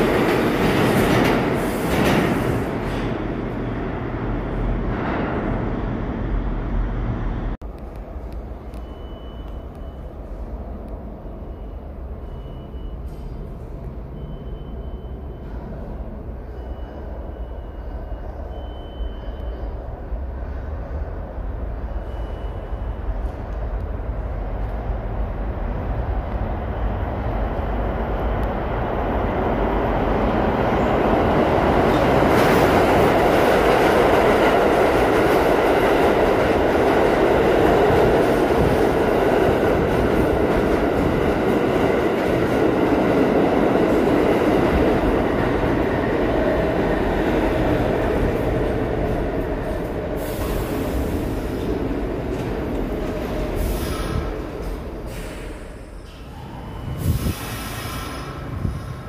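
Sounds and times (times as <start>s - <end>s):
subway train rumbling: 0.0s - 59.0s
high train squeals: 8.7s - 23.6s, 42.1s - 59.0s.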